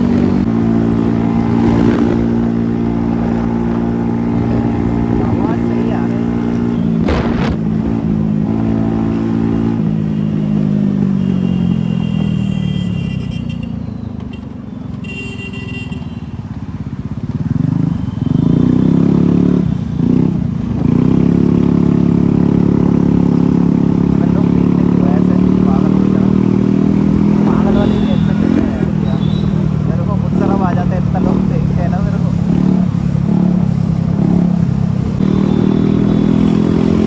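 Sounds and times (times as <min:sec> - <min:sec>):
motorcycle engine running: 0:04.4 - 0:08.6.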